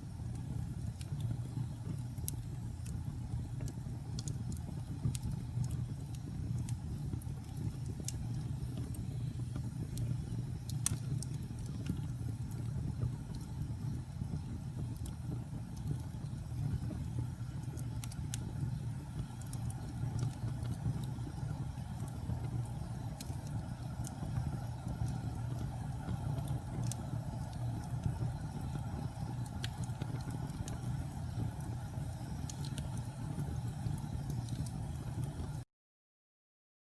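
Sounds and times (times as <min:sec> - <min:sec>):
fire crackling and popping: 0:00.0 - 0:35.6
fire rumbling: 0:00.0 - 0:35.6.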